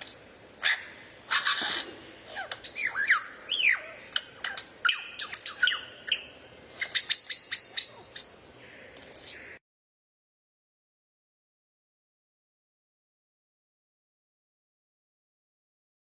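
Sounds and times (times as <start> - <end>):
songbird chirping and whistling: 2.4 - 8.4.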